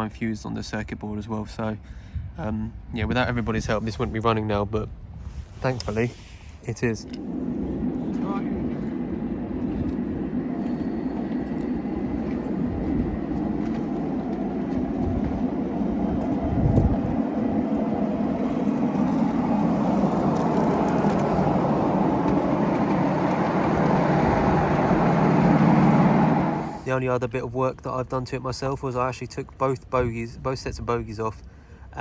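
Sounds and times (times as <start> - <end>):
wind buffeting microphone: 1.8 - 26.9
train wheels rumbling on rail: 5.2 - 26.9
train bump: 6.8 - 26.8.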